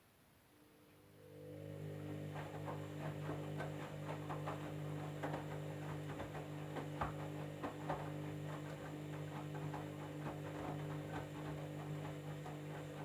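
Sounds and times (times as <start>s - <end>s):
washing machine motor hum: 1.0s - 13.0s.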